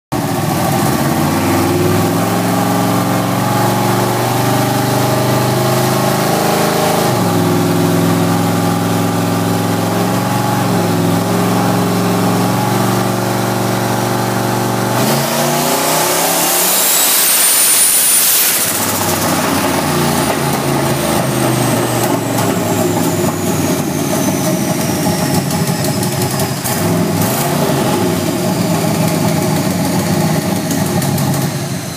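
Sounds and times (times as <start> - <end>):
car engine revving: 0.2 - 31.9
high turbo whistle: 8.0 - 26.8, 27.4 - 31.9.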